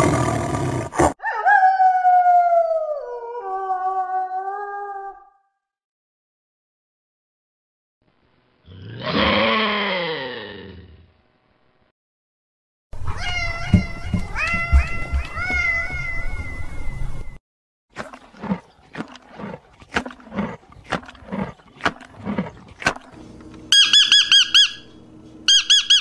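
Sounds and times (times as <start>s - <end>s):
macaw squawking: 23.7s - 26.0s.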